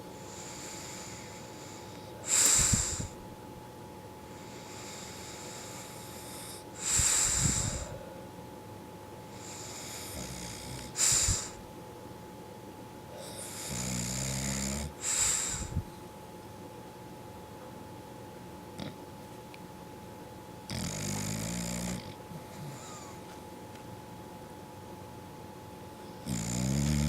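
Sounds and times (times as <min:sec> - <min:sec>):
dog snoring: 0:00.2 - 0:03.2, 0:04.4 - 0:08.0, 0:09.3 - 0:11.6, 0:13.2 - 0:15.8, 0:18.8 - 0:19.0, 0:20.6 - 0:23.2, 0:26.0 - 0:27.0
hissing exhale: 0:02.3 - 0:03.2, 0:06.8 - 0:08.0, 0:11.0 - 0:11.6, 0:15.0 - 0:15.8.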